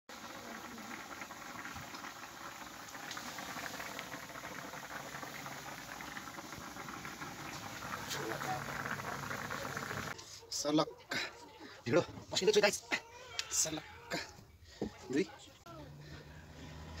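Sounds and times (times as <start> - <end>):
food bubbling in a pot: 0.1 - 10.2.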